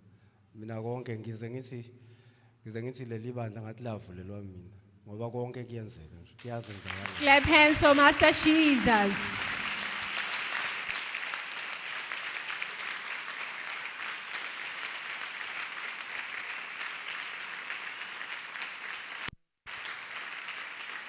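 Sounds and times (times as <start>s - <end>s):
congregation clapping: 6.4s - 21.0s.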